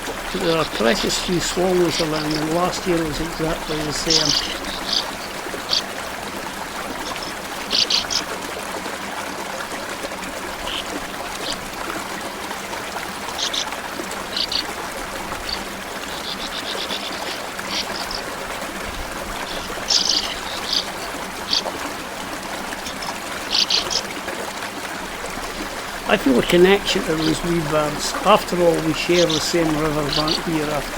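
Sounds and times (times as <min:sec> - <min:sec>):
sand martins chirping: 0:00.0 - 0:05.9, 0:15.4 - 0:18.2, 0:19.4 - 0:21.7, 0:22.8 - 0:24.0, 0:25.5 - 0:30.9
stream water running: 0:00.0 - 0:30.9.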